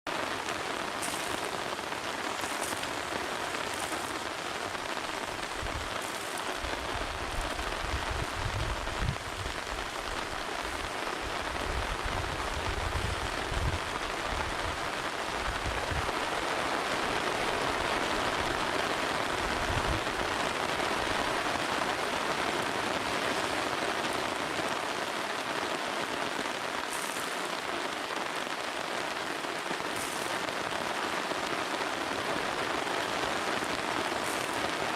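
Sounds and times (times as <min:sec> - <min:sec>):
rain falling: 0:00.0 - 0:34.9.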